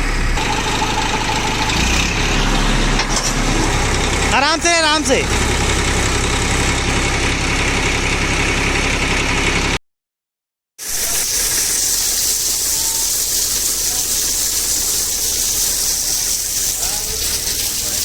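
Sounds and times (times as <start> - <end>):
tractor diesel engine running: 0.0 - 9.8, 11.3 - 18.0
steady hiss: 10.8 - 18.0.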